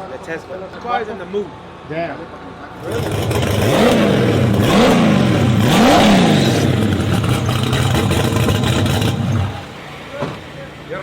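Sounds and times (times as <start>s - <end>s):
car engine accelerating hard: 2.8s - 10.2s.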